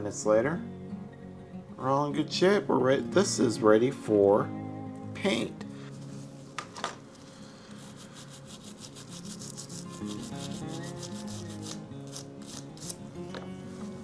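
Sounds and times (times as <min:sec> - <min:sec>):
guitar music: 0:00.0 - 0:14.0
rubbing strokes on metal: 0:07.7 - 0:13.0.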